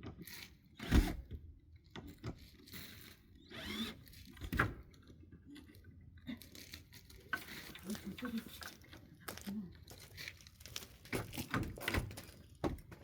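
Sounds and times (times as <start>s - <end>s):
cordless drill driving screw: 3.4s - 4.5s.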